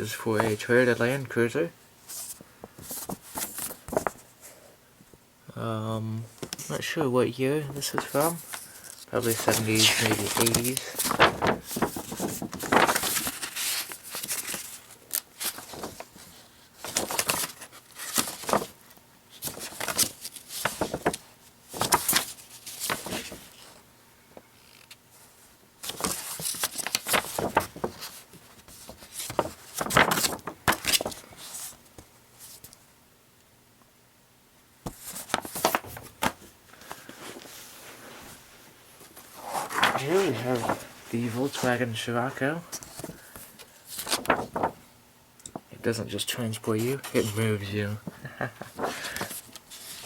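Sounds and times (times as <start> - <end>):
paper pages rustling and turning: 0.2 - 1.1, 2.1 - 4.5, 7.6 - 23.8, 24.6 - 32.8, 34.9 - 38.4, 39.0 - 44.9, 46.7 - 47.7, 48.6 - 50.0.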